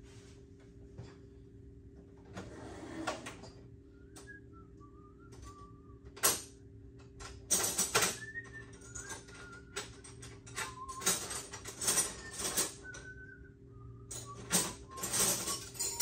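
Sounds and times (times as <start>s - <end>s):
person whistling a tune: 3.9s - 6.2s, 8.0s - 16.0s
metal hand tools clattering: 14.1s - 16.0s.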